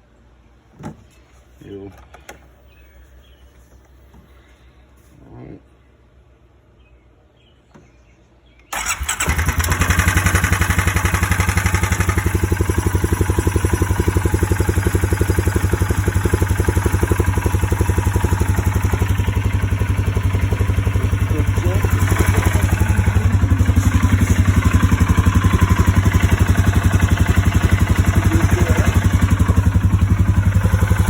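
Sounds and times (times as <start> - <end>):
atv engine starting and idling: 8.7 - 31.0.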